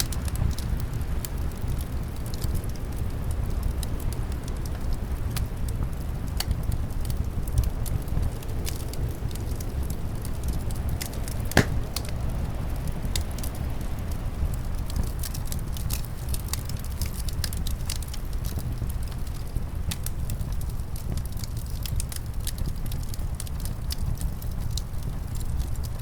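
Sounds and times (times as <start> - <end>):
low rumble of wind: 0.0 - 26.0
wood fire crackling: 0.0 - 26.0
fire pops: 9.7 - 13.5.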